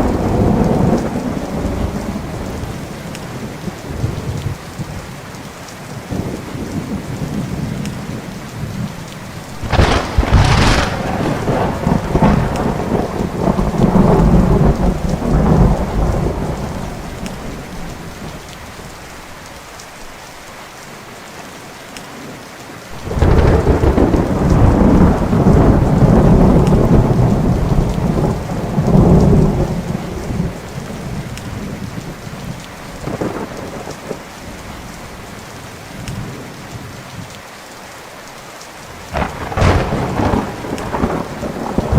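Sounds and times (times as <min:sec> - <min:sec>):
thunder cracks and rumble: 0:00.0 - 0:03.0, 0:09.6 - 0:18.5, 0:22.9 - 0:34.7, 0:39.0 - 0:41.9
rain falling: 0:00.0 - 0:41.9.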